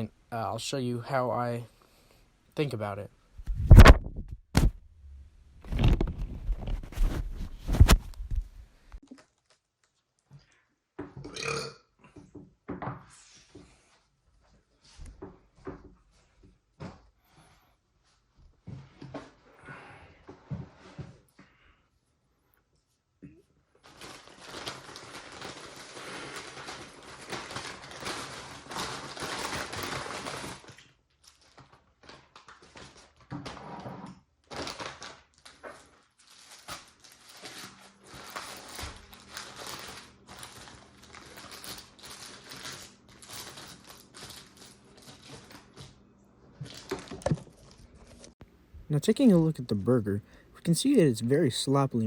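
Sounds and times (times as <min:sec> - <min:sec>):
paper wrapper crinkling: 0:05.7 - 0:08.4, 0:23.8 - 0:33.3, 0:34.4 - 0:45.9, 0:46.6 - 0:48.4.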